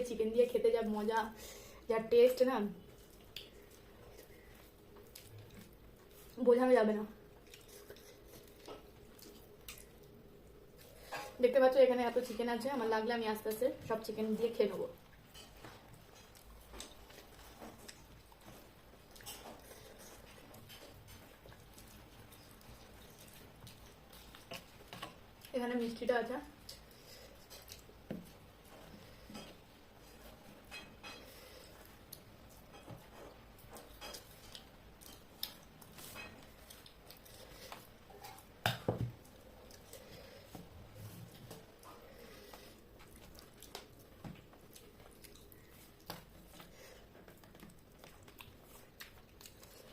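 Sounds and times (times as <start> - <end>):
wet chewing: 2.8 - 6.4, 7.2 - 11.1, 15.1 - 25.6, 26.6 - 29.4, 31.4 - 49.9.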